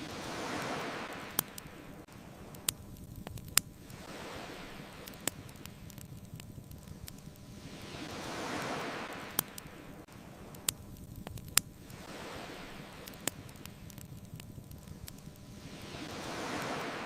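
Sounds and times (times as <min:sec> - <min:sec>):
ocean waves washing in: 0:00.0 - 0:17.0
wood fire crackling: 0:00.0 - 0:17.0.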